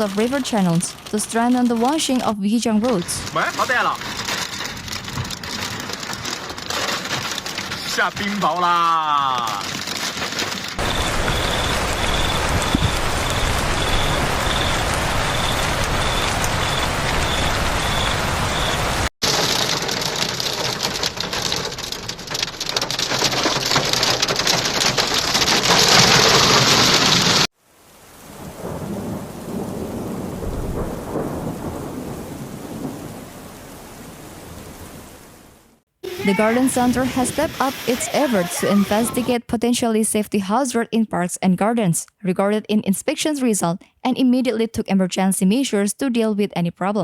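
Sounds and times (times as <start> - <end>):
heavy rain pelting down: 0.0 - 39.3
faint beeps: 10.8 - 18.9.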